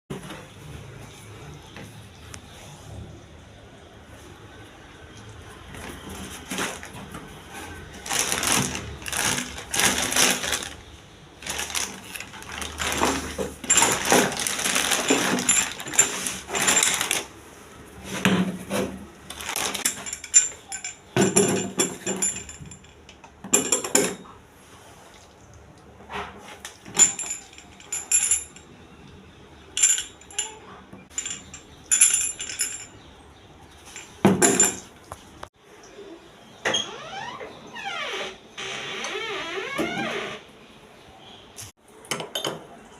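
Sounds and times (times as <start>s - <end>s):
metal tools clinking and scraping: 11.4s - 17.3s, 18.1s - 24.3s, 26.7s - 28.8s, 29.7s - 33.1s, 33.8s - 35.0s.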